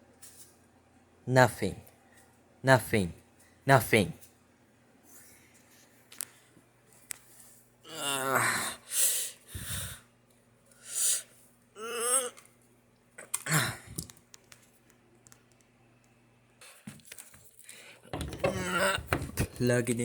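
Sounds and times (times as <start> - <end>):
faint electrical hum: 0.0 - 20.0
breathy vocal sounds: 7.9 - 8.8, 11.2 - 12.5, 13.2 - 14.0
person muttering: 11.8 - 12.5, 13.2 - 14.1, 18.5 - 19.1.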